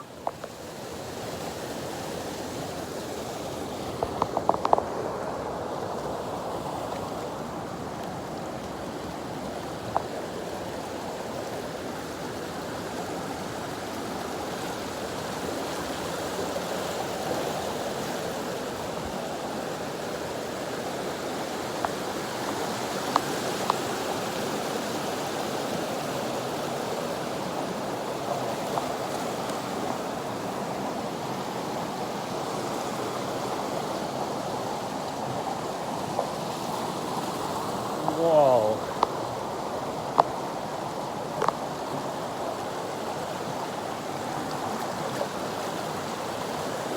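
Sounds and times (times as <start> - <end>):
waterfall roaring: 17.2 - 46.9.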